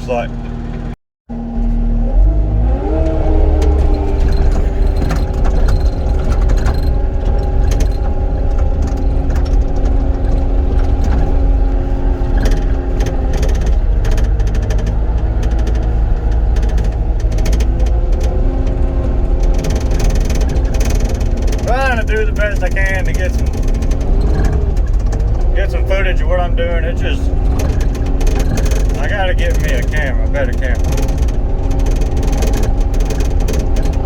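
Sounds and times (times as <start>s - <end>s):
diesel engine revving: 0.0s - 34.0s
scattered clicks: 4.2s - 34.0s.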